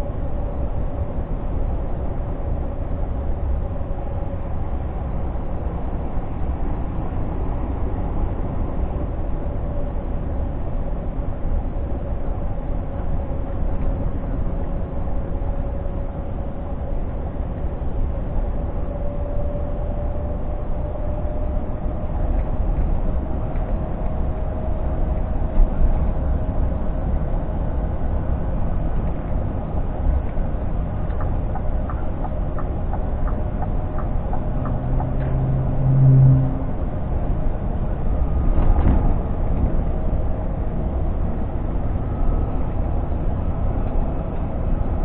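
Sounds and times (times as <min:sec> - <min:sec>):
road rumble: 0:00.0 - 0:45.0
truck engine from inside cab: 0:00.0 - 0:45.0
thin whine: 0:11.1 - 0:38.6.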